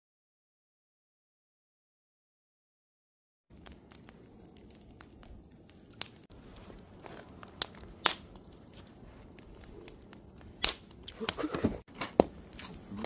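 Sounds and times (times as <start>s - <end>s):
low rush of flame: 3.5s - 11.5s
wood crackling and popping: 3.5s - 13.0s.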